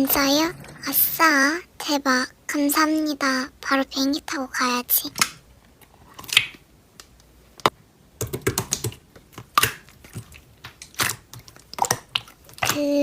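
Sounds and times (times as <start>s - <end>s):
slime clicking and popping: 8.2s - 12.9s.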